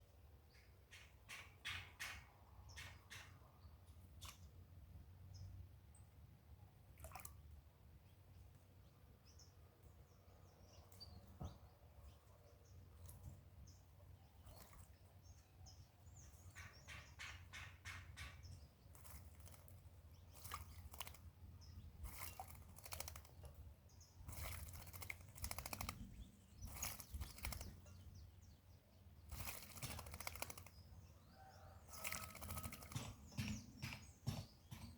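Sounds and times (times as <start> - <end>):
bird splashing in water: 6.9 - 7.6, 14.4 - 15.1, 17.5 - 27.9, 29.2 - 33.3
faint bird chirps: 10.4 - 34.8.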